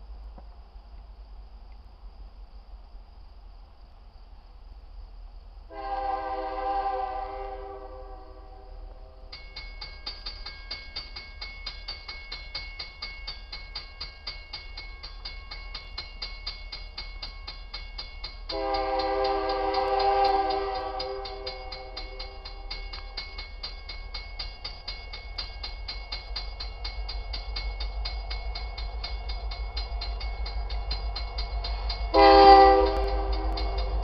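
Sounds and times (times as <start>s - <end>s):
locomotive air horn blasts: 5.7s - 9.3s, 18.5s - 22.2s, 32.1s - 33.8s
bell ringing rapidly: 9.4s - 18.5s, 20.4s - 32.2s.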